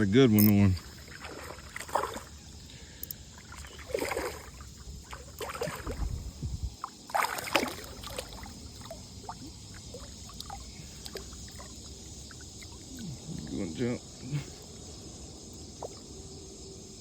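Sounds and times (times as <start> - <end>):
water splashing and sloshing: 0.0 - 14.8, 15.7 - 16.2.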